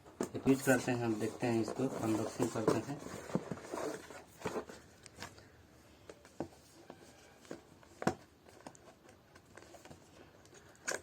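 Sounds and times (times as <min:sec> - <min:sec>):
cardboard box being handled: 0:00.2 - 0:05.4.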